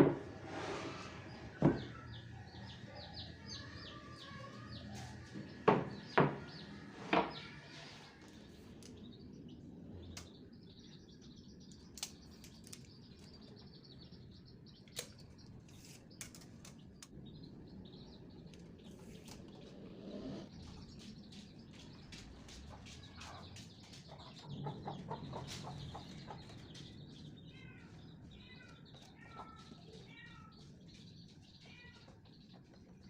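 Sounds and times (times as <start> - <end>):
small birds chirping: 0.0 - 33.0
sharp knocks: 5.6 - 6.5.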